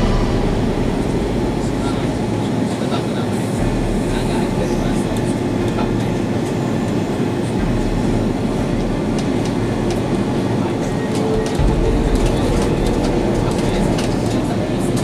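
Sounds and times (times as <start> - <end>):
rushing airflow: 0.0 - 4.0
aircraft engines rumbling: 0.0 - 15.0.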